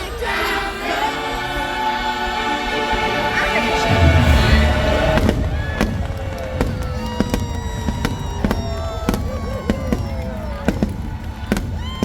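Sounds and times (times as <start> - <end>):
show music: 0.0 - 11.7
fireworks whistling: 3.4 - 12.0
fireworks bangs and crackles: 3.8 - 12.0.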